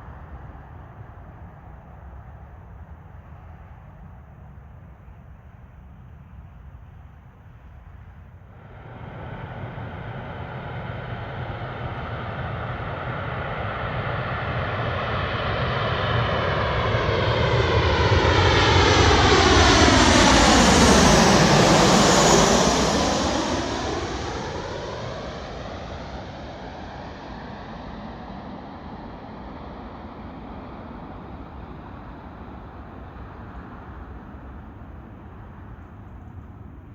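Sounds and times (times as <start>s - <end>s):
airliner engine roar: 0.0s - 36.9s
plane passing whoosh: 8.5s - 36.9s.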